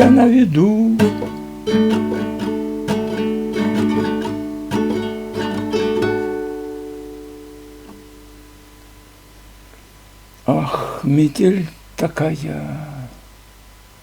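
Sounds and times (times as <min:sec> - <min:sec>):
acoustic guitar strumming chords: 0:00.0 - 0:09.4.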